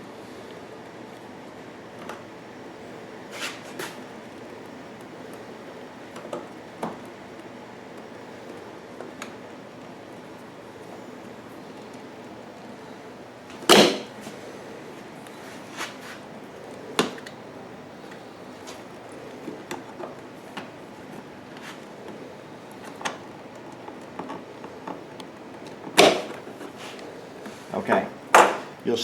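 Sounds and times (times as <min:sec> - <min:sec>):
loud knocks: 0:13.6 - 0:14.2, 0:25.9 - 0:26.5, 0:27.9 - 0:28.8
hand tools clicking and knocking: 0:27.8 - 0:28.8.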